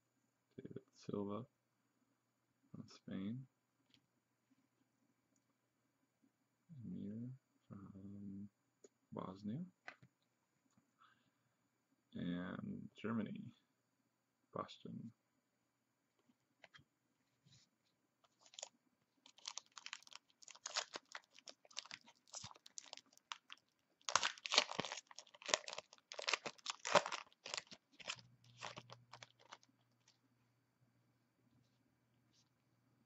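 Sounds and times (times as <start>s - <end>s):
plastic wrapper crinkling: 18.2s - 30.2s.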